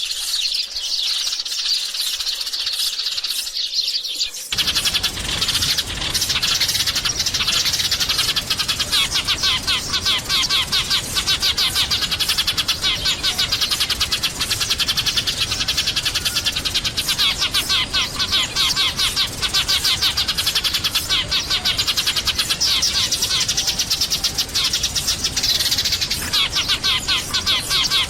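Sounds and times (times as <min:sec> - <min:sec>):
sparrows chirping: 0:00.0 - 0:28.0.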